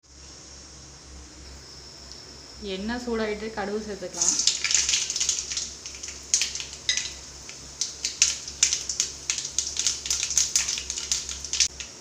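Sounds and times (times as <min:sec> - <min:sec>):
light sizzle: 0:00.0 - 0:12.0
seeds popping in hot oil: 0:04.1 - 0:12.0.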